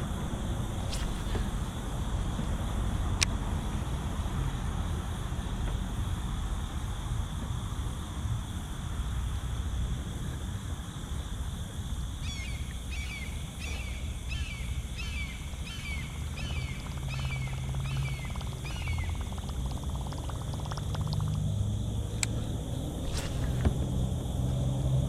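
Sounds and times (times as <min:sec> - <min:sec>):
steady low rumble: 0:00.0 - 0:25.0
bird calling downward notes: 0:12.2 - 0:21.4
faint rapid ticking: 0:16.2 - 0:22.3.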